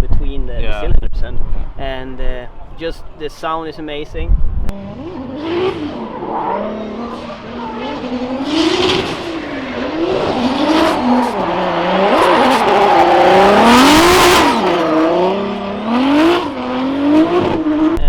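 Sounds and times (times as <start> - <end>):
car engine revving: 4.7 - 18.0
tyres squealing: 5.5 - 16.7.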